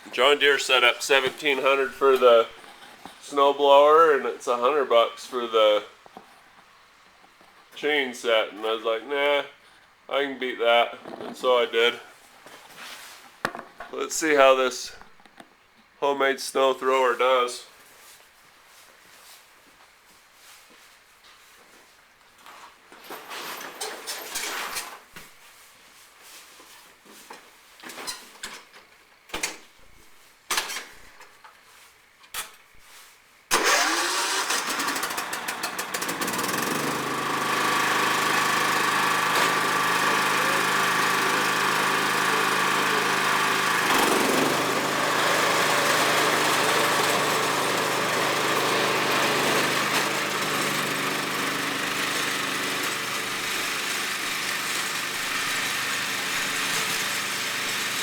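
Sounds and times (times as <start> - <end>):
lawn tractor engine running: 0.0 - 4.0, 33.5 - 58.0.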